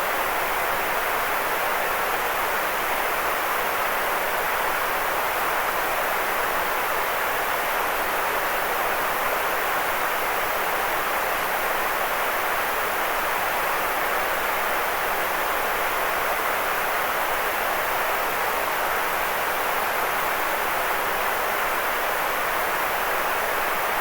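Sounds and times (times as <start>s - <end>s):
white noise hiss: 0.0s - 24.0s.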